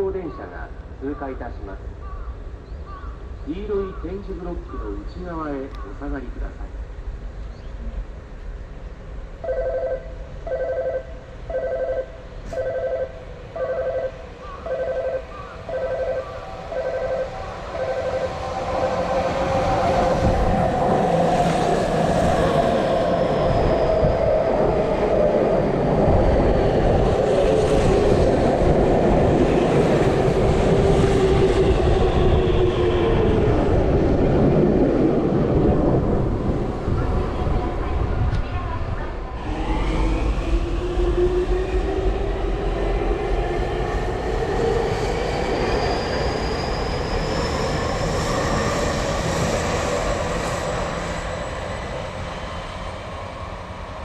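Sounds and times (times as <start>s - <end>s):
electric train passing through: 0.0s - 54.0s
electronic warning beeps: 9.5s - 18.5s.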